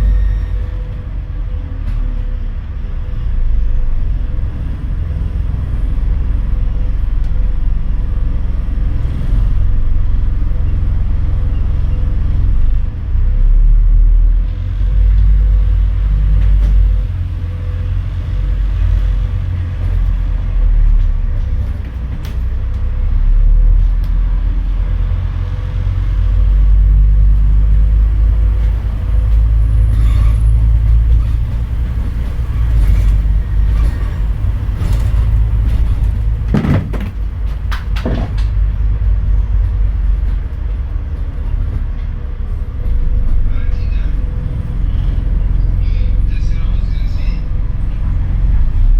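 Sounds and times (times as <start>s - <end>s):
bus engine rumbling: 0.0s - 48.9s
short clatters: 28.6s - 38.8s.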